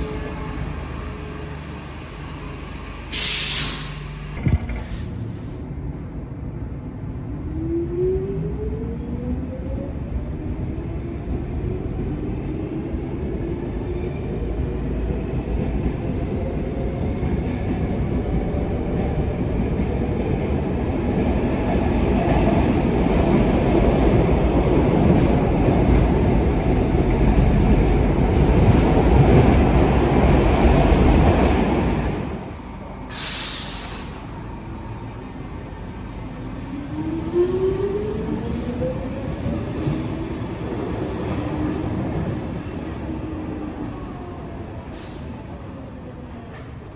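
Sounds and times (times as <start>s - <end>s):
metro train motor whine: 0.0s - 5.5s, 23.2s - 45.0s
train running noise: 0.0s - 7.0s, 11.3s - 46.9s
short hiss: 3.1s - 5.5s, 33.1s - 34.3s.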